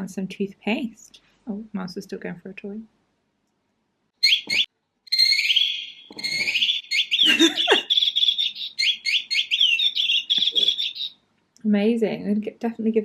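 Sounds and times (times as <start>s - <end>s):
electronic bird toy chirping: 4.2s - 11.2s.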